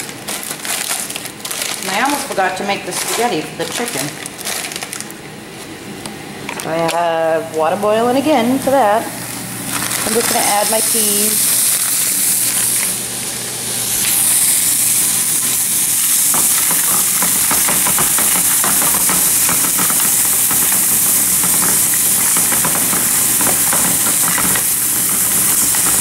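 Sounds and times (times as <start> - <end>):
peas sizzling in hot oil: 9.6 - 26.0
spatula clicking and scraping: 15.4 - 26.0.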